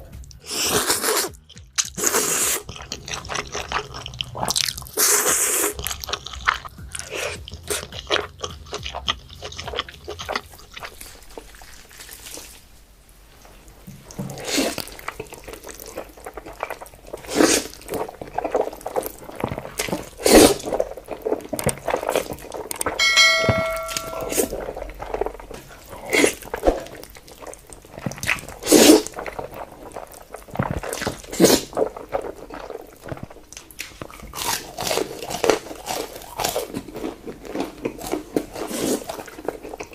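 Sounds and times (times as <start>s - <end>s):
person chewing food: 0.0s - 12.6s, 13.9s - 39.9s
brief pitched sound: 23.0s - 24.5s.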